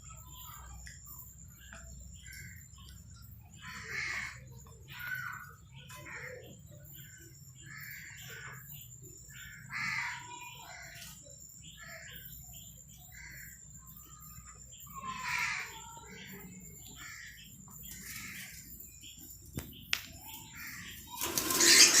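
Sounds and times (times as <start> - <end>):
parrots squawking: 20.5 - 22.0.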